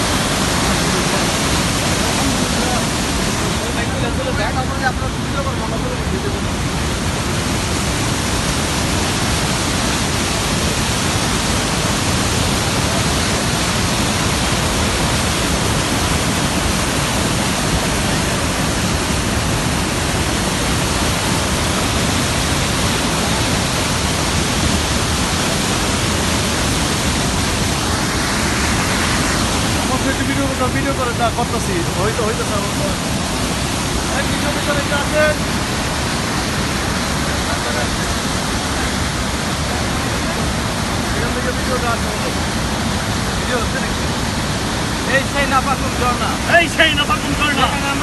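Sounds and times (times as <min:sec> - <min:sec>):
waterfall water rushing: 0:00.0 - 0:48.0.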